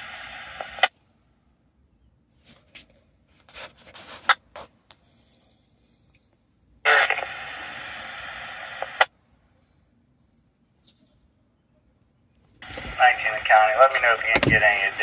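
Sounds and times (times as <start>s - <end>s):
radio static hiss: 0.0s - 0.9s, 6.8s - 9.2s, 12.6s - 15.0s
radio transmission crackles: 0.0s - 1.0s, 6.8s - 9.2s, 12.6s - 15.0s.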